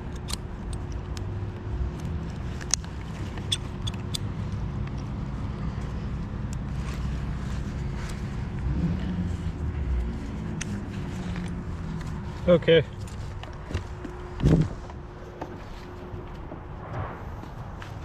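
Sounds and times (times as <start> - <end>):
engine running: 0.0 - 18.0
sharp clicks: 2.0 - 5.1.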